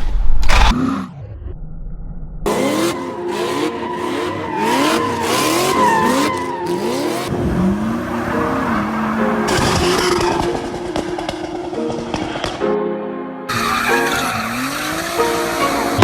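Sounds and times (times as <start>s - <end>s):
car engine revving: 2.5s - 12.6s, 13.5s - 16.0s
tires squealing: 2.5s - 12.7s, 13.5s - 16.0s.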